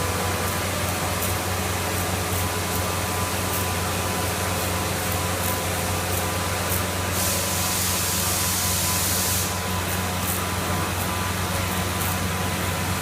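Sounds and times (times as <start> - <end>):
high hiss: 6.1 - 10.4.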